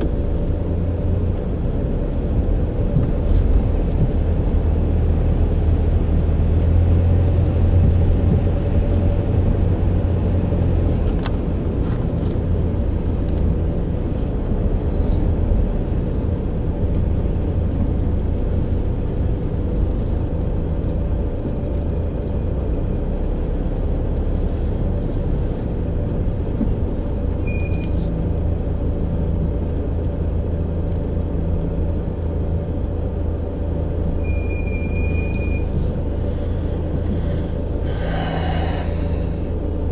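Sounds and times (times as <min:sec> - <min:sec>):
car engine and road rumble: 0:00.0 - 0:39.9
short high beeps: 0:27.5 - 0:28.0, 0:34.2 - 0:35.7.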